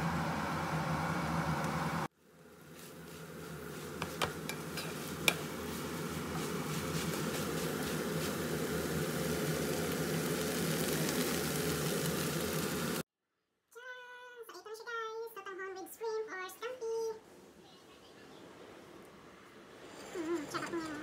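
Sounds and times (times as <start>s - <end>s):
noodles sizzling in a frying pan: 2.2s - 13.0s
spatula knocking on pan: 4.0s - 5.5s.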